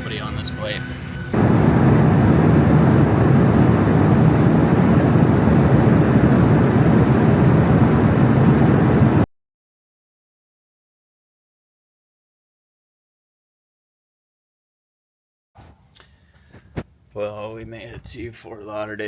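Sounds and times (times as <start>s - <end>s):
jet engines rumbling in cabin: 1.2s - 9.3s.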